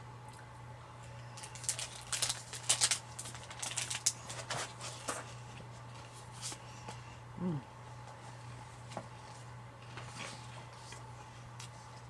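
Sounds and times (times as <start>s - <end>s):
faint low hum: 0.0s - 12.0s
person chewing crispy food: 1.0s - 4.4s.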